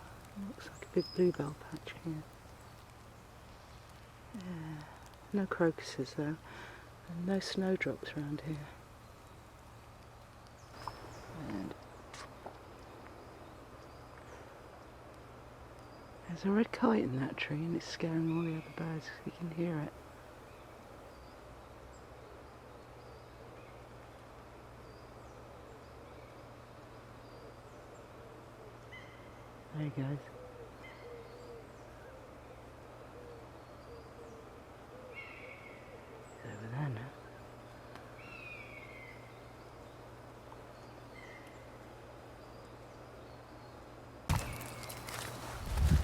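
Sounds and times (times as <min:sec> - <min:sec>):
low steady hum: 0:00.0 - 0:46.0
loud rustle and thump: 0:44.3 - 0:46.0.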